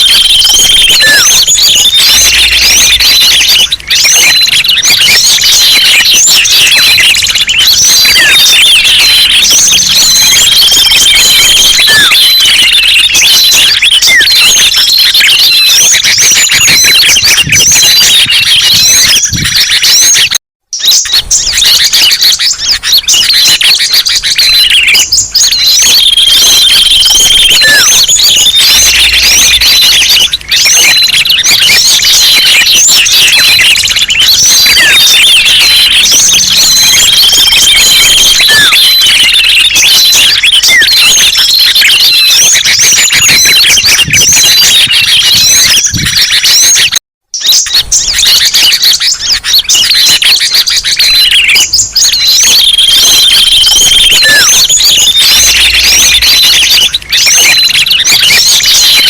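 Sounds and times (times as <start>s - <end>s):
songbirds chirping in chorus: 0.0s - 46.8s.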